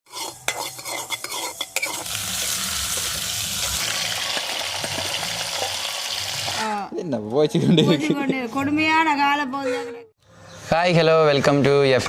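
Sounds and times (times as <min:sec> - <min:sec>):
spoon scraping in a pan: 0:00.1 - 0:05.8
food sizzling in oil: 0:00.1 - 0:06.8.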